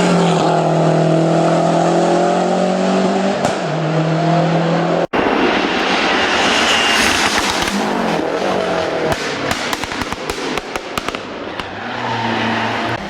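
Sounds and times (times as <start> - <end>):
car engine pulling at high revs: 0.0 - 10.8.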